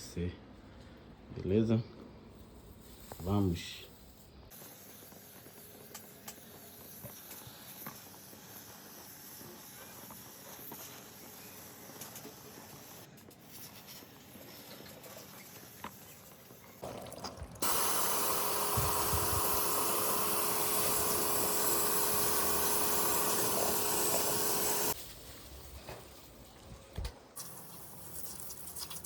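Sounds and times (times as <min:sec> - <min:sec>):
spray jet hissing: 0:17.6 - 0:25.0.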